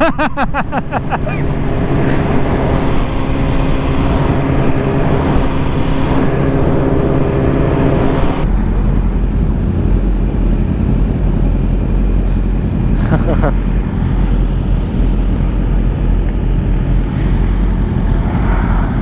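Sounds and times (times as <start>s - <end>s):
sport bikes idling rumble: 0.0s - 18.2s
sport bike engine cruising: 0.0s - 19.0s
wind rush: 0.0s - 19.0s.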